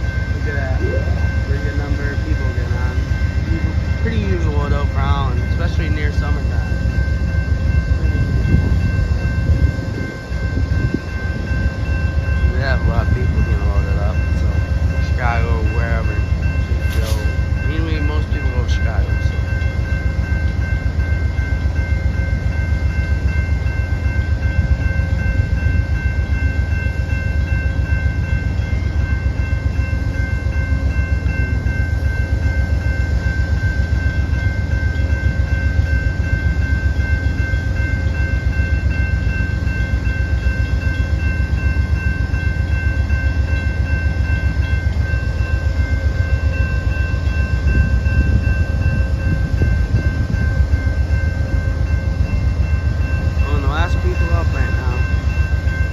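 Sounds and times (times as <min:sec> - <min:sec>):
diesel locomotive engine rumble: 0:00.0 - 0:55.9.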